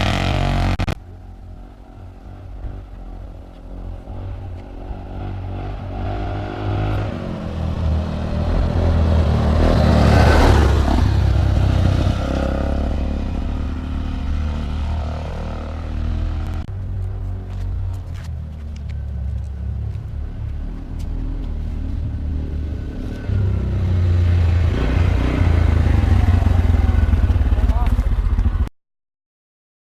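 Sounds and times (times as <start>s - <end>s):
atv engine running: 6.8s - 28.7s.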